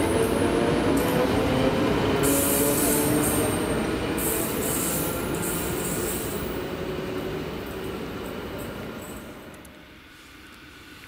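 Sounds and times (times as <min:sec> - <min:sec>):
train running gear rumble: 0:00.0 - 0:11.0
train wheels squealing: 0:02.2 - 0:06.6.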